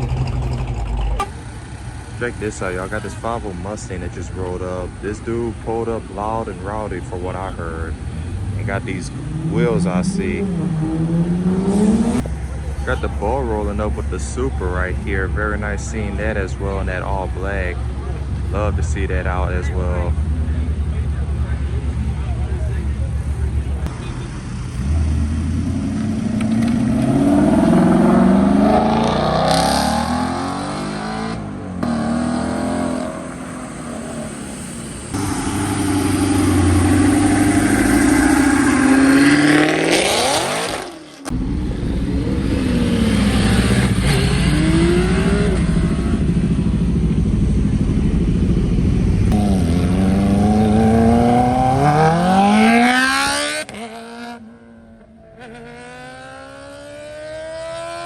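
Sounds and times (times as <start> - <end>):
car engines revving and accelerating: 0.0 - 58.0.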